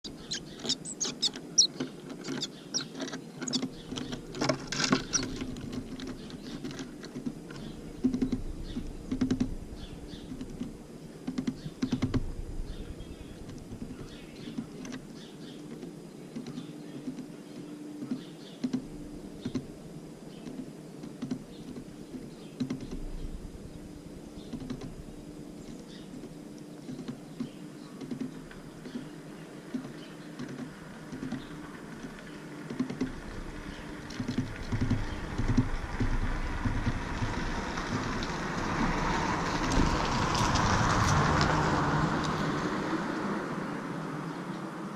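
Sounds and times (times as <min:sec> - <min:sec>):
faint high bird calls: 0:00.0 - 0:06.8
birds tapping at seeds: 0:00.0 - 0:23.4, 0:24.3 - 0:25.0, 0:25.6 - 0:42.6
low steady hum: 0:00.0 - 0:44.9.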